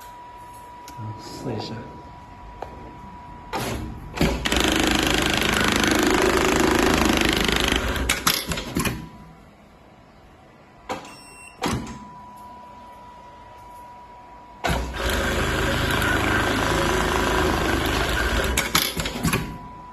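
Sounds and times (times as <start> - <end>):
sewing machine running: 4.3 - 8.2, 14.7 - 19.0.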